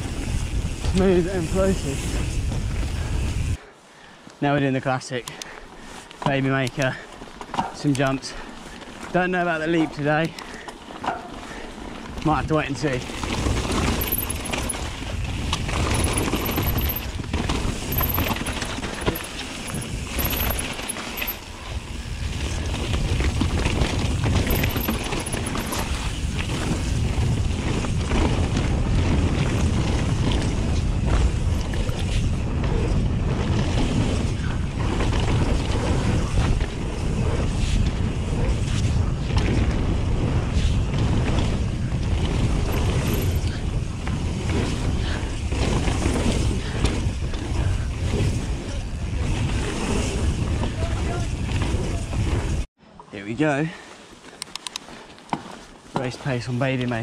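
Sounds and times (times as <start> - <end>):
wind buffeting microphone: 0.0 - 3.6, 12.1 - 52.7
tyres rumbling over dirt: 7.8 - 52.7
bike frame rattling and knocking: 13.1 - 21.4, 22.5 - 26.1, 42.6 - 43.6.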